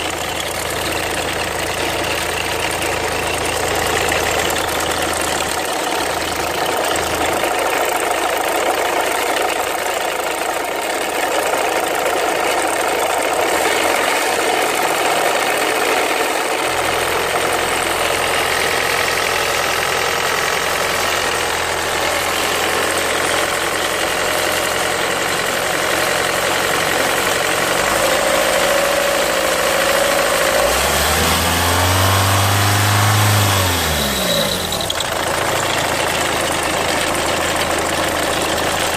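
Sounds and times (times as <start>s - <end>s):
chirping noise from engine: 0.0s - 7.5s, 31.9s - 38.9s
diesel engine running: 0.0s - 38.9s
engine revving: 13.4s - 38.9s.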